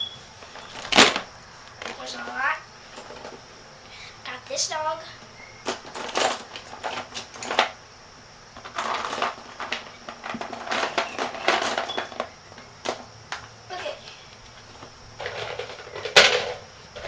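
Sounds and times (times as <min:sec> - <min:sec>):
plastic toy figures clattering: 0:05.7 - 0:07.8, 0:08.6 - 0:13.0, 0:15.2 - 0:17.0.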